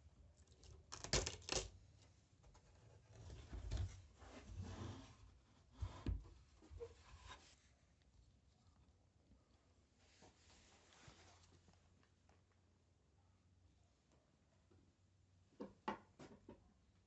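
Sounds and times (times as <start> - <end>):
soft rustling: 9.9 - 12.4.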